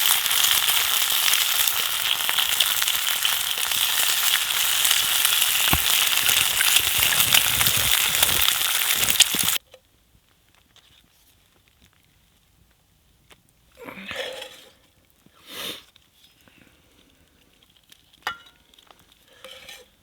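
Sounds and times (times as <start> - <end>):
bacon sizzling in a pan: 0.0 - 9.6
crackling pops: 0.0 - 9.6.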